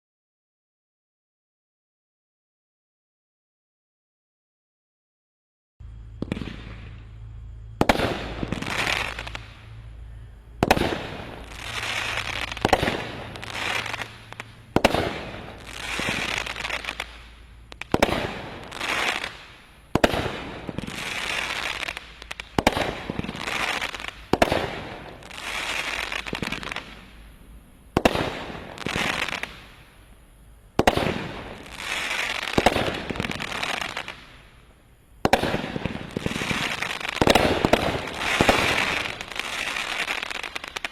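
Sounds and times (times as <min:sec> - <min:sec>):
firework bursting and crackle: 0:05.8 - 0:40.9
firework shots launching: 0:06.1 - 0:09.7, 0:10.6 - 0:27.2, 0:27.9 - 0:29.8, 0:30.8 - 0:34.5, 0:35.2 - 0:40.9.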